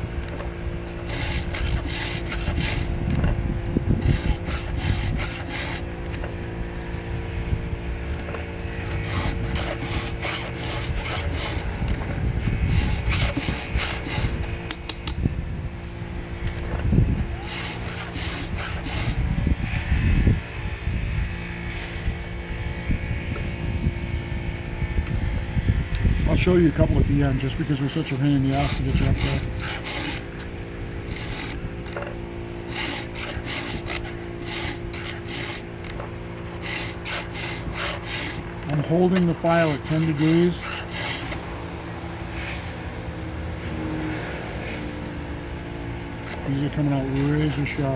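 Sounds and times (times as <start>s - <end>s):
steady low hum: 0.0s - 47.9s
file scraping chainsaw chain: 0.3s - 6.9s, 8.2s - 15.2s, 17.3s - 19.2s, 27.4s - 41.5s, 46.3s - 47.9s.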